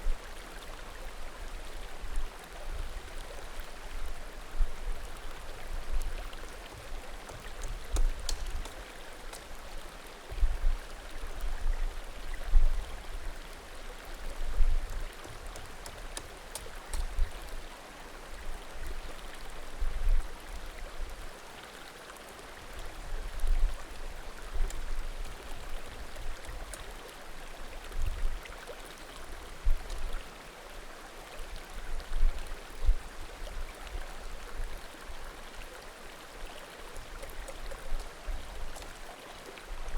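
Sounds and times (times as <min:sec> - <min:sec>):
firewood popping: 0:07.9 - 0:08.8, 0:15.5 - 0:17.1
creek babbling: 0:11.0 - 0:19.5, 0:33.8 - 0:39.9.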